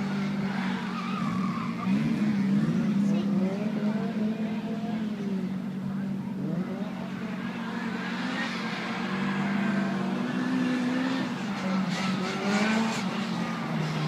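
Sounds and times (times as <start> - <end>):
car engine revving: 6.4 - 14.0.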